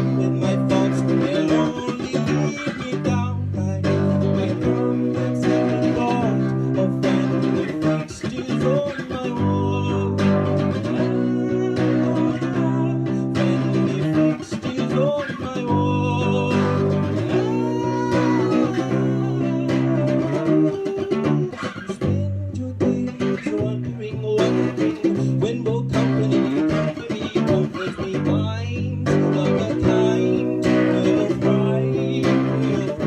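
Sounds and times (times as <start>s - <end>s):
plucked guitar: 0.0s - 33.0s
sustained bass notes: 15.7s - 26.9s.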